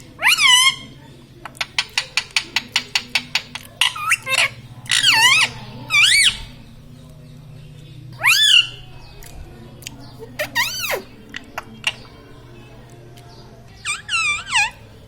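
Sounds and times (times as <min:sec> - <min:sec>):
parrot squawks: 0:00.2 - 0:00.9, 0:03.8 - 0:06.4, 0:08.2 - 0:08.8, 0:10.2 - 0:11.2, 0:13.8 - 0:14.8
parrot clicking chatter: 0:01.6 - 0:06.4, 0:10.3 - 0:11.1.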